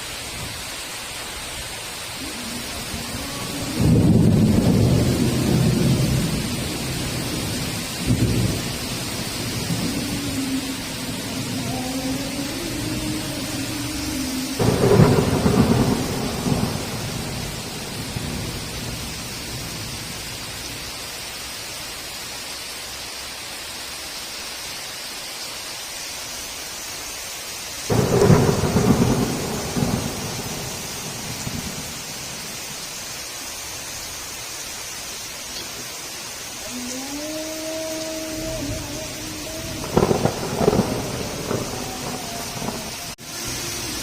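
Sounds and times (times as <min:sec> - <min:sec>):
heavy rain hissing: 0:00.0 - 0:44.0
thunder rolling: 0:02.2 - 0:20.2, 0:27.9 - 0:32.6, 0:38.4 - 0:44.0.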